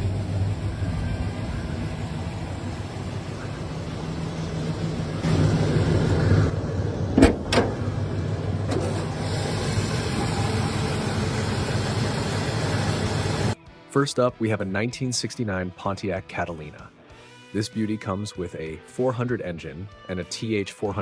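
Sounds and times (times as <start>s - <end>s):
car engine running: 0.0s - 13.6s.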